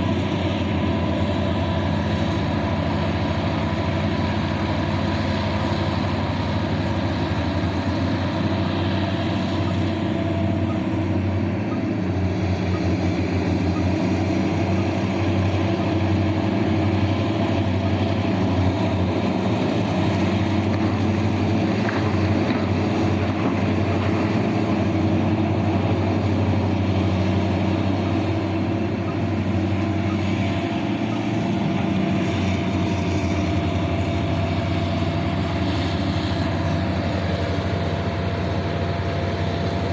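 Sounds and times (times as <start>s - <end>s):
heavy diesel engine humming: 0.0s - 39.9s.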